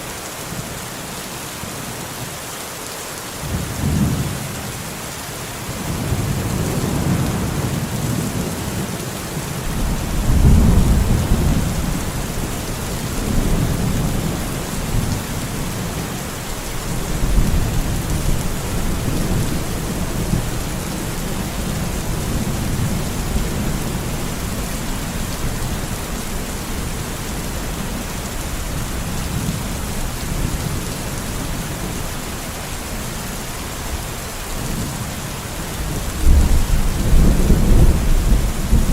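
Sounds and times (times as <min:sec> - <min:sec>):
rain hissing: 0:03.4 - 0:38.9
rolling thunder: 0:09.6 - 0:16.0, 0:35.8 - 0:38.9.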